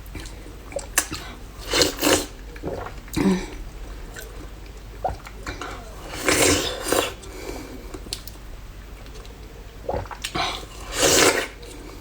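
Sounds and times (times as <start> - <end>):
wet slurping and squishing: 0.0 - 8.4, 9.0 - 12.0.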